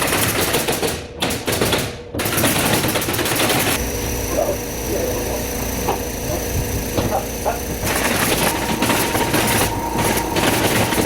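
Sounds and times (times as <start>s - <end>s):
high whine and low hum: 3.8s - 11.0s.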